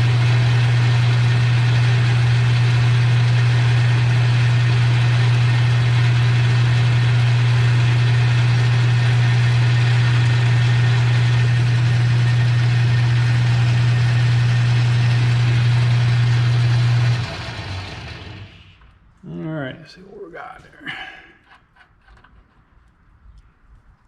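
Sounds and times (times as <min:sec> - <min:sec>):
metal lathe humming: 0:00.0 - 0:18.7
lathe winding down: 0:00.0 - 0:18.8.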